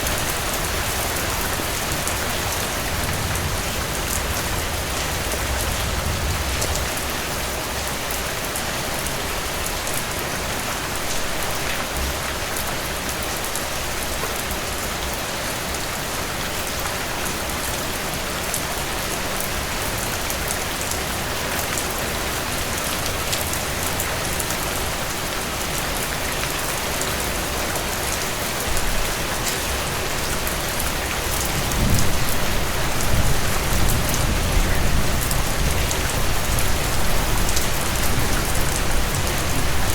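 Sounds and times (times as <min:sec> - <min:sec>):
heavy rain pattering on porch: 0:00.0 - 0:39.9.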